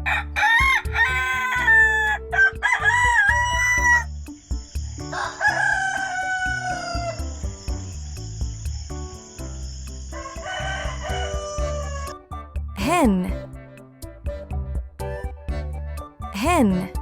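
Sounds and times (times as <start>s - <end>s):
rooster crowing: 0.0s - 4.1s, 5.1s - 7.3s, 10.2s - 12.2s
background music: 0.0s - 17.0s.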